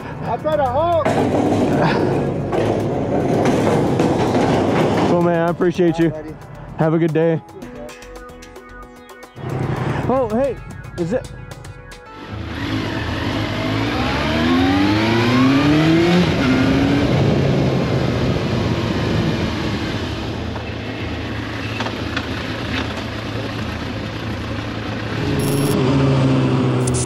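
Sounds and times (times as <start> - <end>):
wind and road rush: 0.0 - 7.3, 9.4 - 27.0
motorcycle engine accelerating: 12.1 - 20.4, 21.6 - 27.0.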